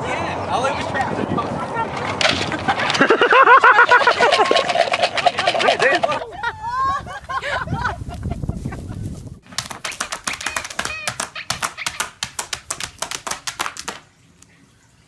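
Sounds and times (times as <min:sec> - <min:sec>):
fast light taps: 0:09.6 - 0:14.0.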